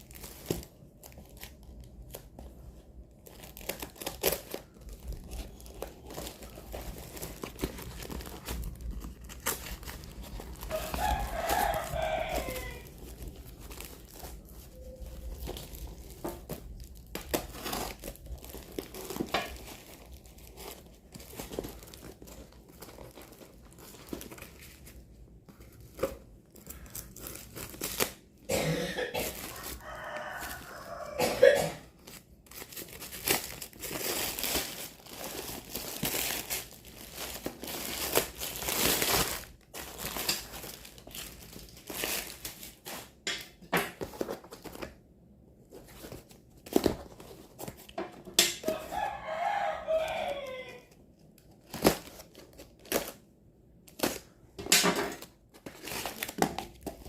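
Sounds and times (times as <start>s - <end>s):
plastic packaging crinkling: 0.0s - 28.5s, 29.2s - 31.2s, 31.8s - 45.0s, 45.6s - 57.0s
rooster crowing: 10.5s - 13.1s, 29.4s - 31.6s, 48.6s - 51.0s.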